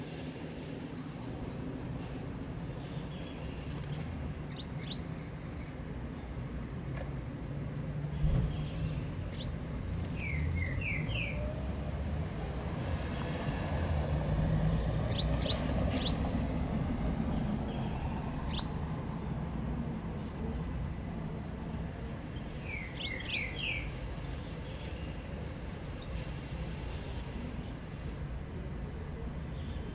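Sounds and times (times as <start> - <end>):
bird chirping: 14.7 - 16.2, 22.6 - 24.0.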